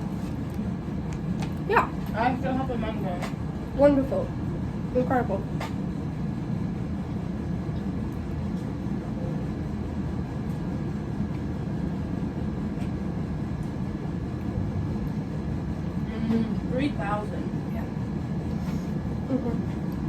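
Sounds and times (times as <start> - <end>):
vehicle cabin rumble: 13.7 - 20.0.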